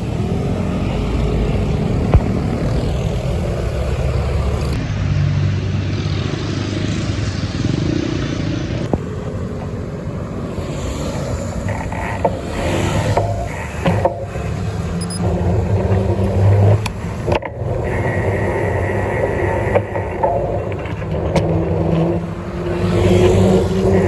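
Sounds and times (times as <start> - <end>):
vehicle engines rumbling: 0.0 - 24.0
sharp clicks: 10.6 - 24.0.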